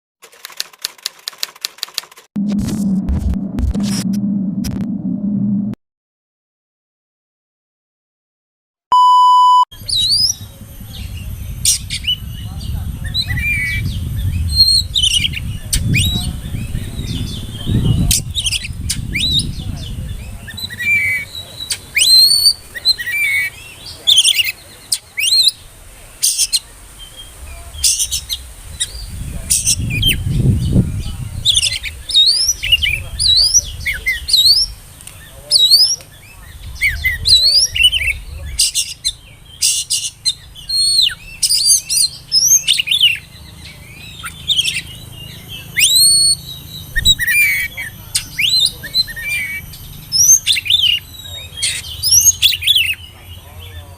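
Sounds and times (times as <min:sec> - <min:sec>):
bird singing sharp whistled notes: 0:36.8 - 0:53.0.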